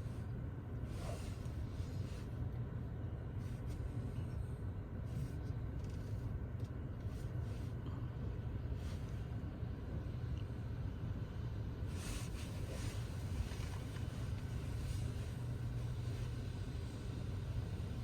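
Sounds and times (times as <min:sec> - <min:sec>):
car wash machinery rumble: 0:11.8 - 0:18.0.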